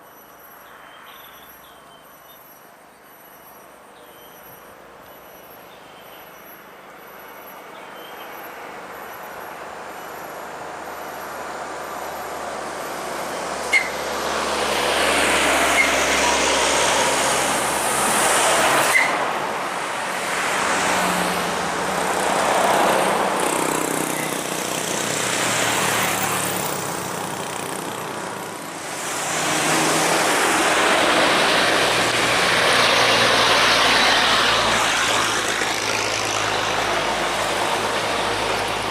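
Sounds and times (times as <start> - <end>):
heavy trucks passing: 8.8 - 38.9.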